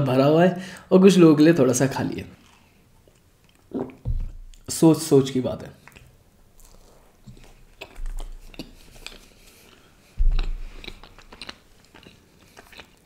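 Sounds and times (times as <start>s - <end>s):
close chewing: 2.2s - 4.7s, 5.7s - 13.0s
wet mouth clicks: 2.4s - 4.7s, 5.8s - 13.0s
low thumps: 4.0s - 4.7s, 10.2s - 11.0s.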